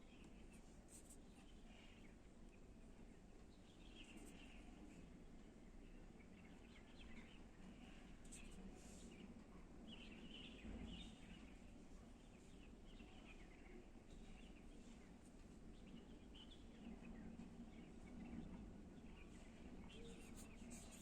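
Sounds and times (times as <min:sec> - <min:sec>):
faint birds chirping: 0:00.0 - 0:21.0
low background hum: 0:00.0 - 0:21.0.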